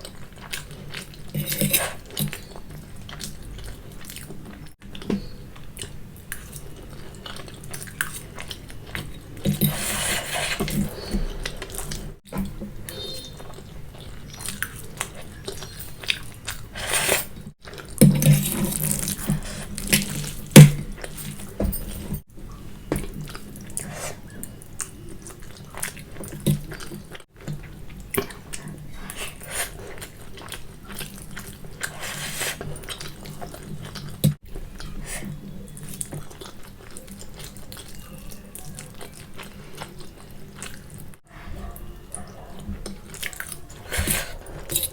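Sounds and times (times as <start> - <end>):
chewing: 0.0 - 44.9
noodles slurping: 28.4 - 33.2.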